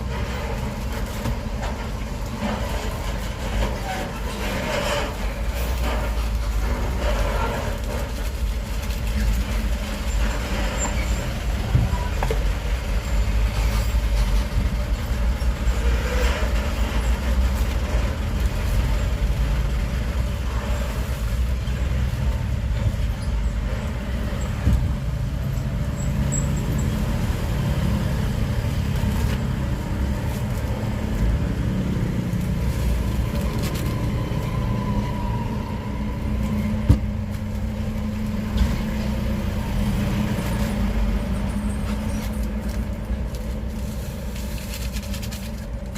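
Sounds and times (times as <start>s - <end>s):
motor traffic rumble: 0.0s - 45.9s.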